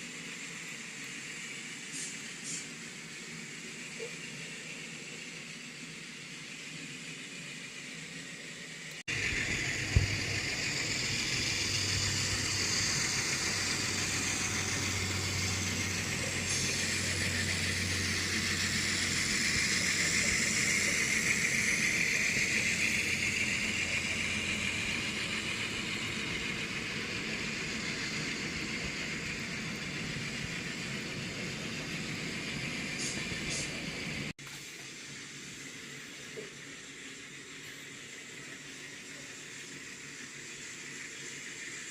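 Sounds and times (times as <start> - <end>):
diesel engine through small speaker: 9.1 - 34.3.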